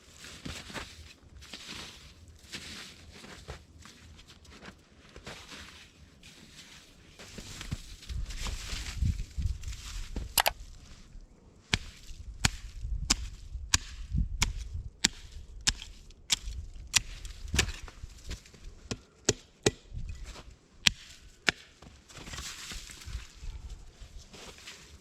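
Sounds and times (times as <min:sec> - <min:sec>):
axe chopping wood: 0:11.8 - 0:17.9, 0:18.9 - 0:20.0, 0:20.8 - 0:21.8.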